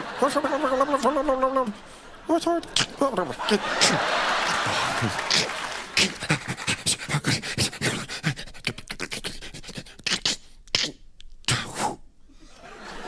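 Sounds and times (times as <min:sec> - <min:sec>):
vocal hissing bursts: 0:05.2 - 0:12.0
clicking mouth noises: 0:05.3 - 0:12.0.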